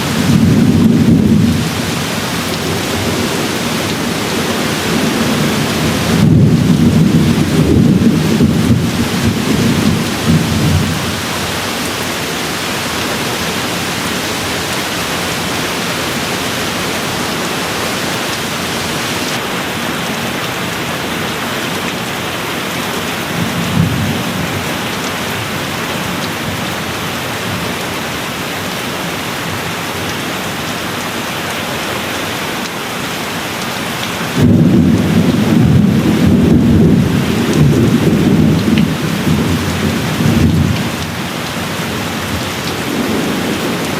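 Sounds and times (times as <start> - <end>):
steady rain falling: 0.0 - 43.9
thunder rumbling: 0.1 - 19.4, 34.4 - 41.1.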